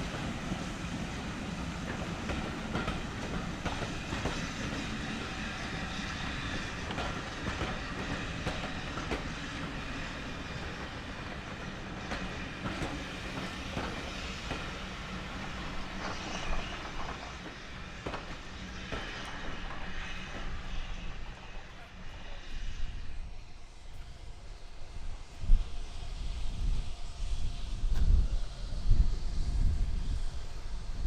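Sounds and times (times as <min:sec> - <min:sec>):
train wheels clicking over rails: 0:00.0 - 0:21.4
train rumble: 0:00.0 - 0:31.0.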